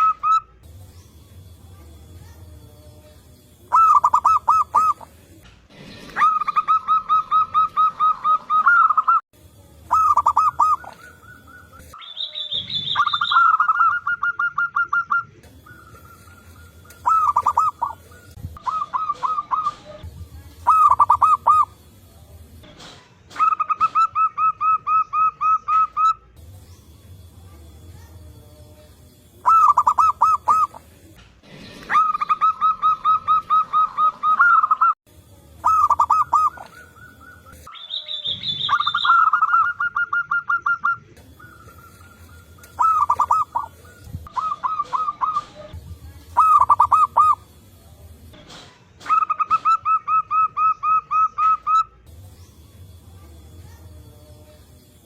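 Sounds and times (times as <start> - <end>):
doves cooing in staccato notes: 3.7 - 5.2, 6.1 - 9.2, 9.9 - 12.0, 12.8 - 20.0, 20.6 - 21.8, 23.3 - 26.2, 29.4 - 30.9, 31.8 - 35.0, 35.6 - 37.7, 38.5 - 45.8, 46.4 - 47.6, 49.0 - 51.9
higher bird call: 9.9 - 20.0, 35.6 - 45.7.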